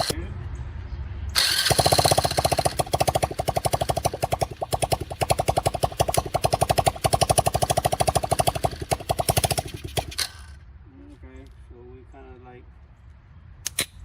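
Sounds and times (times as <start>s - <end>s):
small atv engine running: 1.4s - 10.6s.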